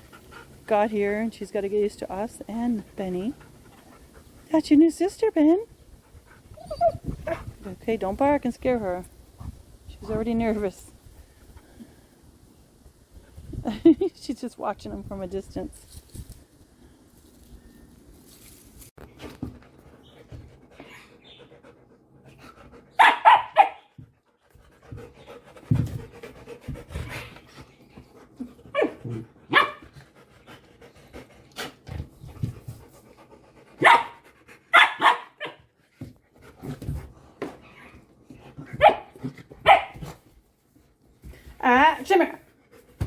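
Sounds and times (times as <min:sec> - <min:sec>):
dog barking: 0:23.0 - 0:23.9, 0:28.8 - 0:29.8, 0:33.8 - 0:35.6, 0:38.8 - 0:40.0.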